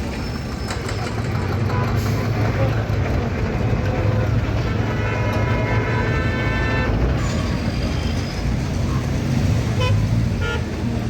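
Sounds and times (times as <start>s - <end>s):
traffic engines rumbling: 0.0s - 11.0s
vehicle horn: 4.8s - 7.0s, 9.8s - 10.8s.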